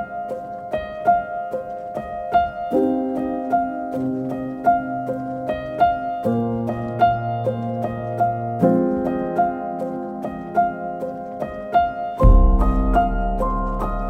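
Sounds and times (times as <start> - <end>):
deep bass note: 12.2 - 14.0.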